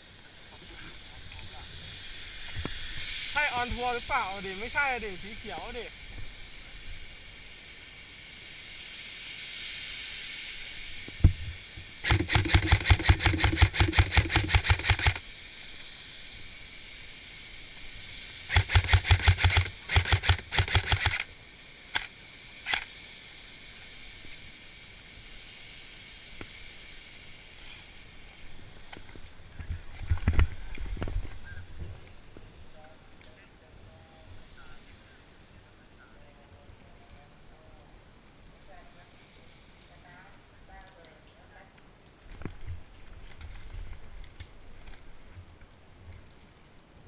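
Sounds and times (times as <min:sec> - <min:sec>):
airsoft rifle full-auto bursts: 0:12.0 - 0:15.2, 0:18.5 - 0:21.3, 0:21.9 - 0:22.9.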